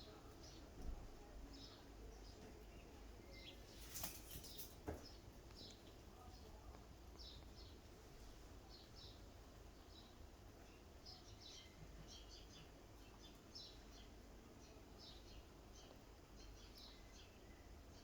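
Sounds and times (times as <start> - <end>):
faint small birds chirping: 0.0 - 18.0
brief rustle: 3.6 - 5.1.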